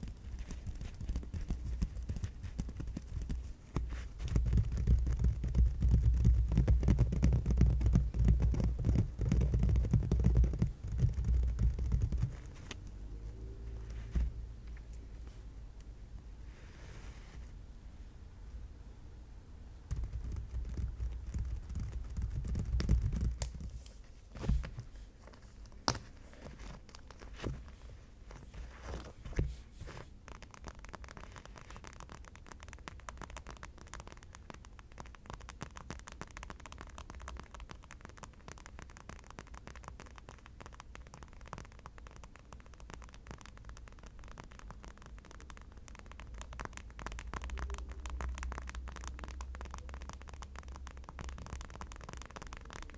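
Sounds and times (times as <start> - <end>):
fine scratching and tapping: 0.0 - 15.5, 16.5 - 17.6, 19.9 - 52.9
object handled with low rumble: 0.1 - 17.6, 20.9 - 32.1.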